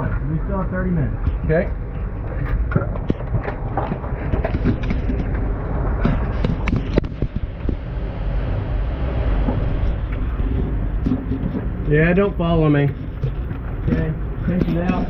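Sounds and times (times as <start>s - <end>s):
low handling rumble: 0.0s - 15.0s
scraping and rustling of crawling: 9.8s - 15.0s.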